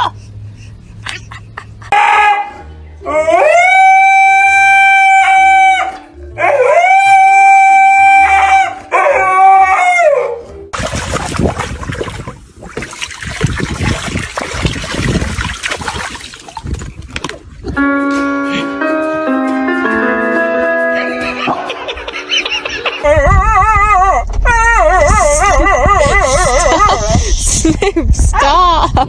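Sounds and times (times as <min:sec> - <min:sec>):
dog howling: 0:02.0 - 0:10.4, 0:23.0 - 0:26.9.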